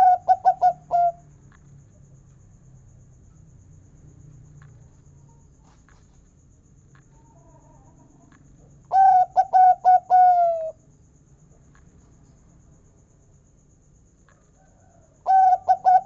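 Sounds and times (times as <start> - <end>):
dove cooing: 0.0 - 1.2, 8.9 - 10.8, 14.9 - 16.0.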